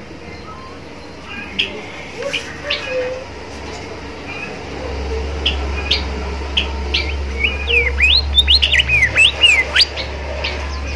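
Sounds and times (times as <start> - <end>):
steady low hum: 0.0 - 10.9
songbird chirping and whistling: 0.3 - 3.4, 4.3 - 10.9.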